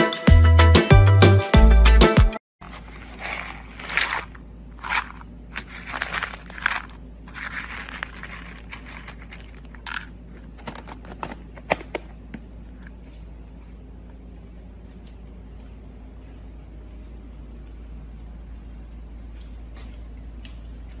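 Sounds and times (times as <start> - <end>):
pellets clicking against plastic: 2.6 - 10.1
plastic cup scooping dry kibble: 2.6 - 10.1.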